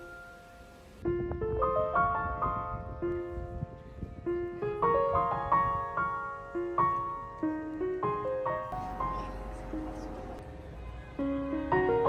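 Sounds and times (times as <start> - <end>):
gentle piano music: 0.0 - 12.0
low rumble: 8.8 - 11.8.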